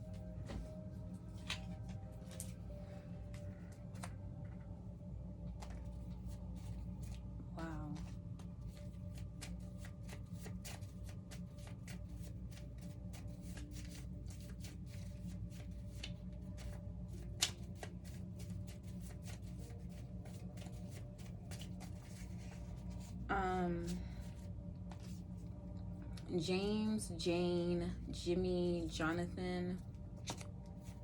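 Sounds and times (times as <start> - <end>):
cards being shuffled: 0.2 - 4.6, 5.5 - 7.2, 7.8 - 23.2, 23.8 - 25.5, 30.1 - 31.0.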